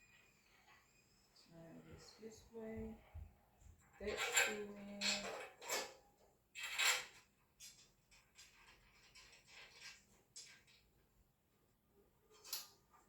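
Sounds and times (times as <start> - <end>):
screw scraping and rustling: 6.6 - 10.8.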